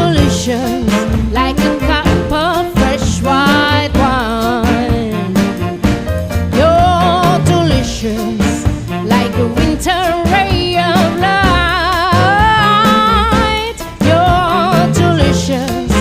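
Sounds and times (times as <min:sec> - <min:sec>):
upbeat swing song with singer: 0:00.0 - 0:16.0.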